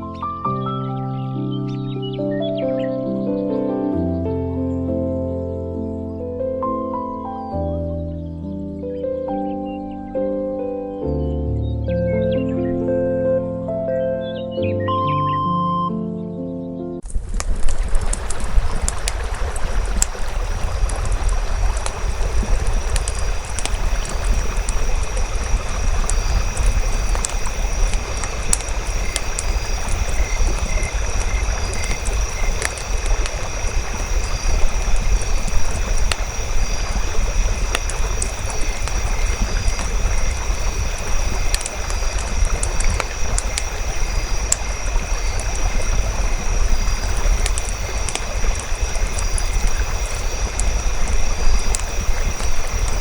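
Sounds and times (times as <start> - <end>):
campfire crackling and popping: 17.0 - 53.0
steady low rumble: 17.3 - 53.0.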